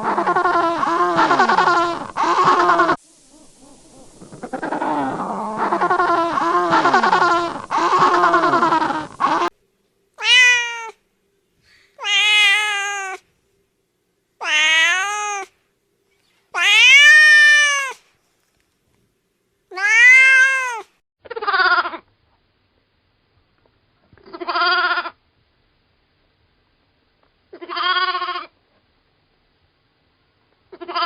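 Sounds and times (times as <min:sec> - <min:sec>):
cat meowing: 0:10.2 - 0:11.0, 0:12.0 - 0:13.2, 0:14.4 - 0:15.5, 0:16.6 - 0:18.0, 0:19.7 - 0:20.9.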